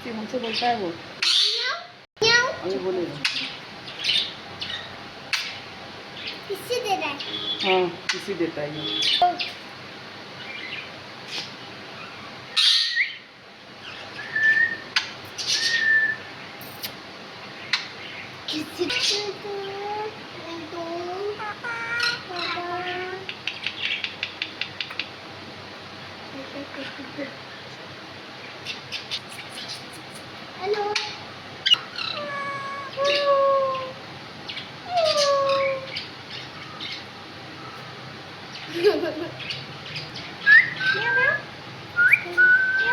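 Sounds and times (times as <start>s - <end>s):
bird chirping: 8.8s - 9.6s, 28.4s - 30.3s, 31.0s - 33.9s
bird whistling notes: 14.2s - 16.8s, 40.4s - 41.4s, 42.0s - 42.9s
bird kissing clicks: 16.6s - 17.0s, 29.2s - 30.3s.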